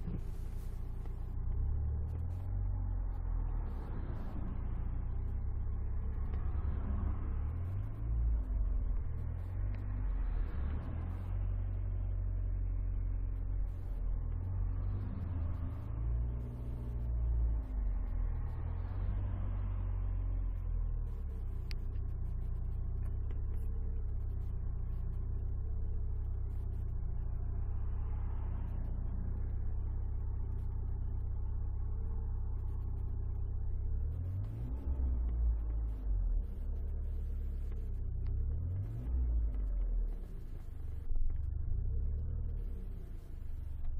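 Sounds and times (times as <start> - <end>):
car engine and road rumble: 0.0 - 43.9.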